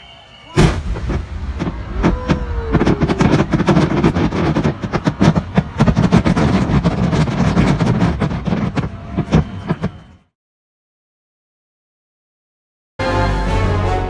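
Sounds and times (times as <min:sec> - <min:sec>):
fireworks bangs and crackles: 0:00.6 - 0:10.3.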